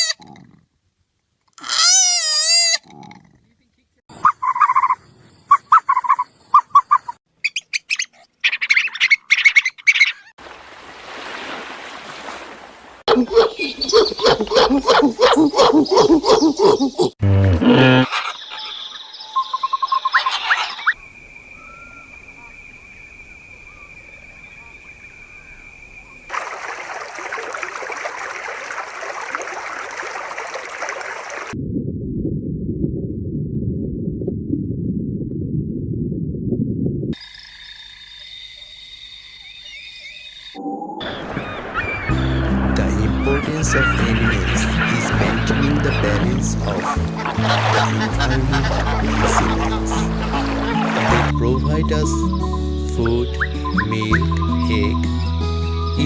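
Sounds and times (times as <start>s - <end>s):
running water rushing: 10.4s - 13.0s, 26.3s - 31.6s, 41.0s - 51.4s
birds chirping: 13.1s - 17.2s, 17.8s - 31.6s, 39.1s - 56.0s.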